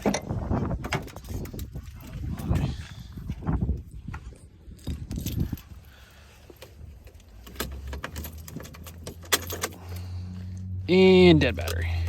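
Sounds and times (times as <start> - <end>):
keys jangling: 4.4 - 5.8, 7.2 - 10.1.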